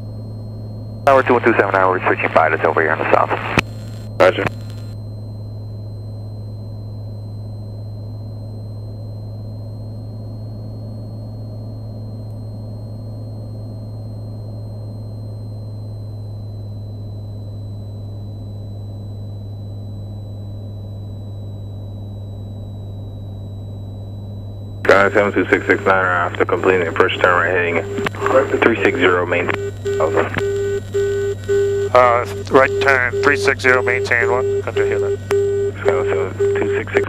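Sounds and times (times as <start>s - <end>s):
propeller aircraft engine droning: 0.0s - 5.7s, 24.8s - 37.0s
faint high-pitched whine: 24.9s - 37.0s.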